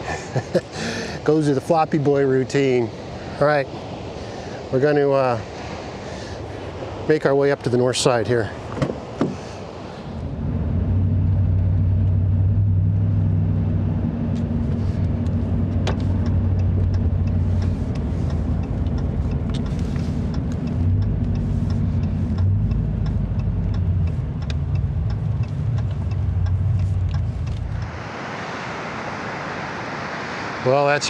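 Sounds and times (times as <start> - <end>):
engine and road drone: 8.5 - 31.0
faint ticks: 14.3 - 27.9.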